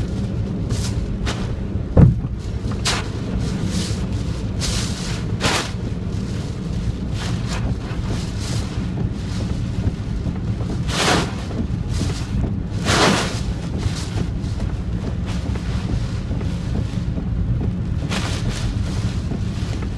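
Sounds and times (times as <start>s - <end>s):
strong wind buffeting microphone: 0.0s - 19.9s.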